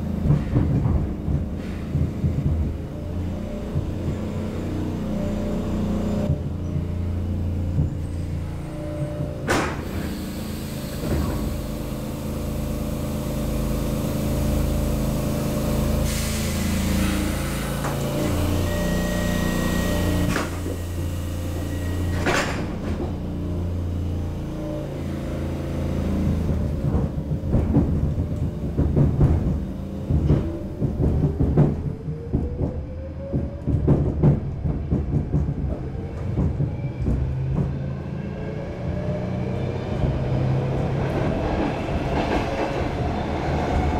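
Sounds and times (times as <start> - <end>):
subway car equipment humming: 0.0 - 43.9
train doors knocking shut: 0.2 - 3.0, 9.0 - 10.2, 22.1 - 23.2, 26.3 - 37.8
train motor whine: 3.6 - 34.1
wheel clatter on rails: 26.2 - 37.9.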